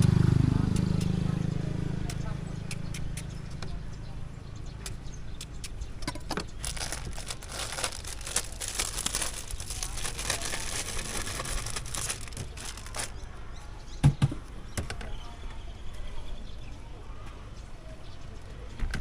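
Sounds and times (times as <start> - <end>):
plastic bag crinkling: 6.6 - 13.2.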